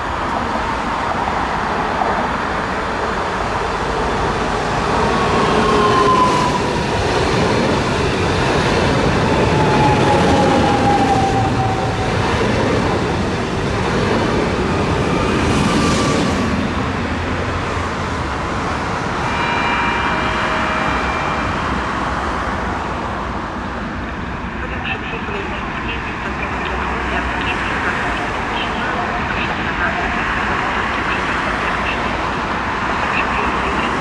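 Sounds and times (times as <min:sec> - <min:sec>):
train wheels rumbling on rails: 0:00.0 - 0:34.0
high whining tones: 0:18.8 - 0:24.4.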